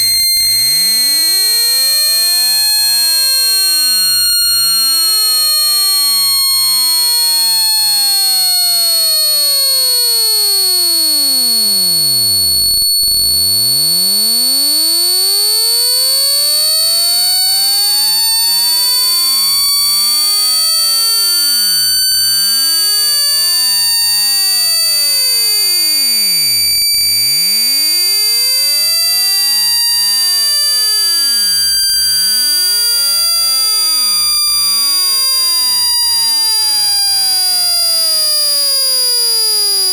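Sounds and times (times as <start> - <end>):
steady high whistle: 0.0 - 39.9
sweeping electronic tone: 10.9 - 25.0.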